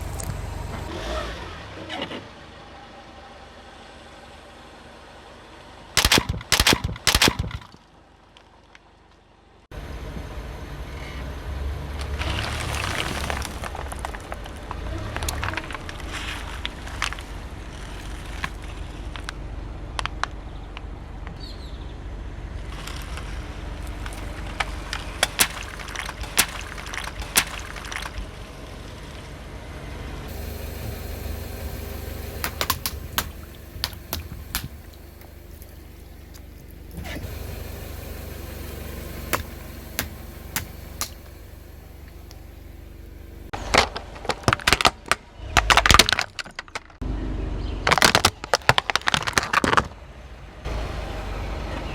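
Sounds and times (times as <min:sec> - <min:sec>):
car rumble: 0:00.0 - 0:51.9
tyre crushing brittle objects: 0:06.0 - 0:08.9, 0:12.0 - 0:20.9, 0:22.6 - 0:29.4, 0:30.3 - 0:36.6, 0:43.5 - 0:47.0, 0:47.8 - 0:50.0.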